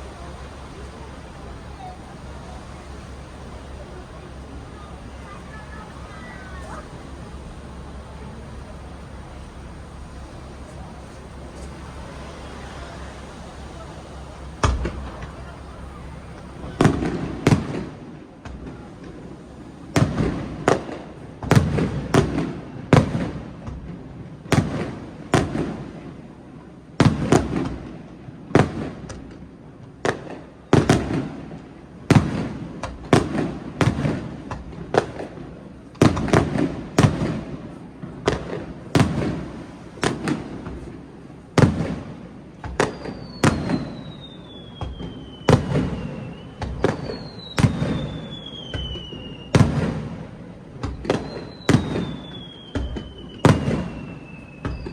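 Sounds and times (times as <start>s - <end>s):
descending whistle: 0.0s - 17.0s, 42.8s - 49.8s, 51.1s - 54.9s
fireworks bangs with echo: 0.0s - 54.9s.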